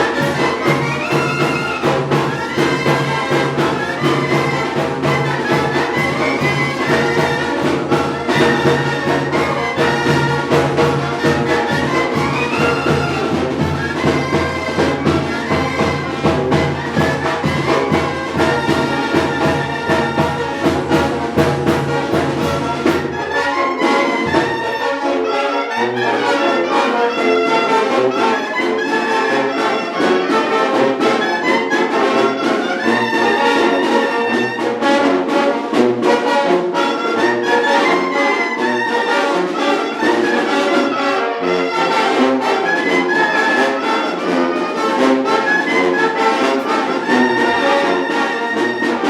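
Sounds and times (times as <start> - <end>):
steady drum beat: 0.0 - 24.8
brass band playing: 0.0 - 49.0
trumpets and trombones playing: 0.0 - 49.0.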